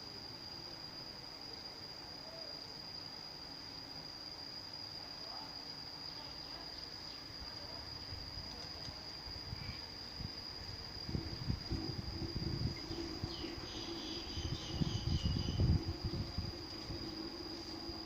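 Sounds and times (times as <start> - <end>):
insect trilling: 5.2 - 18.0
faint rushing: 10.2 - 18.0
low bumps: 10.2 - 18.0.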